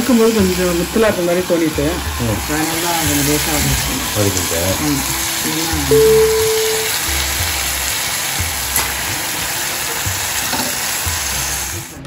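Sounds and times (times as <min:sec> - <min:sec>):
food sizzling in a pan: 0:00.0 - 0:12.0
background music with low beat: 0:02.0 - 0:09.4.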